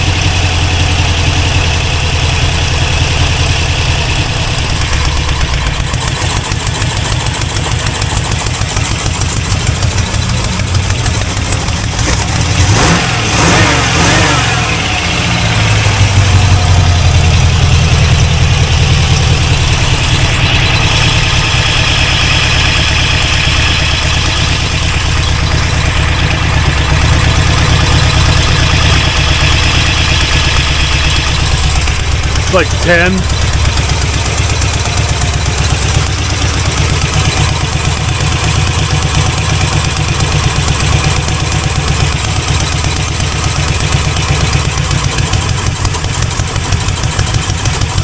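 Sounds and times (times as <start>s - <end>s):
car engine idling: 0.0s - 48.0s.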